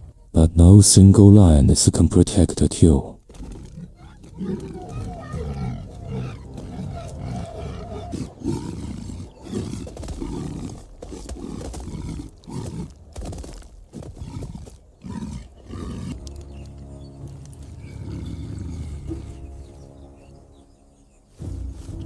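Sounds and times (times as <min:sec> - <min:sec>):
lions growling and snarling: 0:00.0 - 0:00.3, 0:03.2 - 0:22.0.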